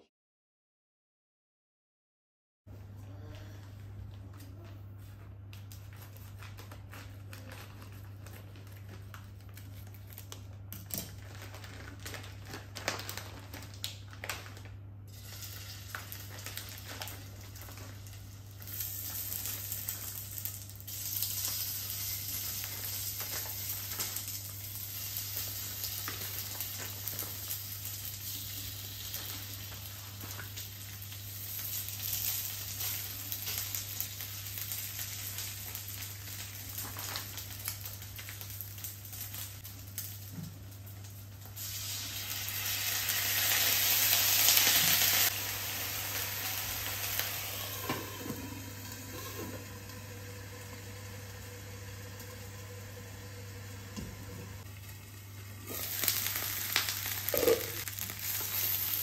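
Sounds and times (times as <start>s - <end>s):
dumplings sizzling in a pan: 15.1s - 59.0s.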